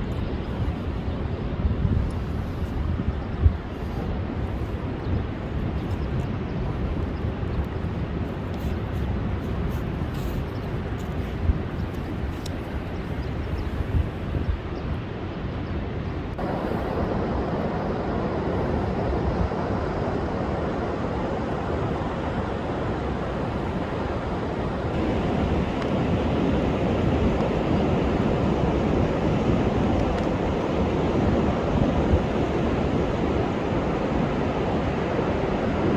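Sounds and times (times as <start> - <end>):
strong wind: 0.0 - 35.9.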